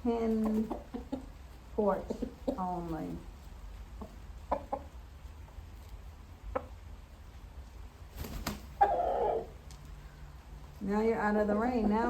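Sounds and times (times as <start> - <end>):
chickens clucking: 0.1 - 5.2, 5.8 - 7.2, 8.2 - 9.7, 11.4 - 12.0
low steady rumble: 9.4 - 12.0.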